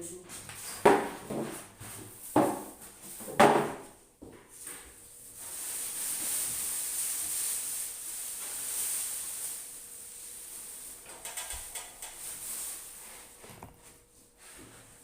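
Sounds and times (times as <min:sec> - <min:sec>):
steady hiss: 0:05.2 - 0:13.4.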